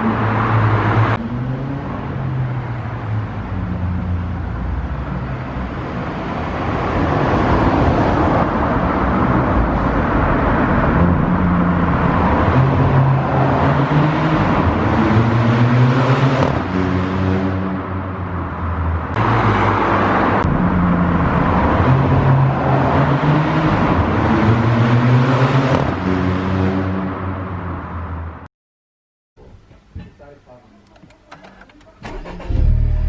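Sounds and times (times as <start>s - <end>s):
car engine pulling hard: 31.3s - 33.0s.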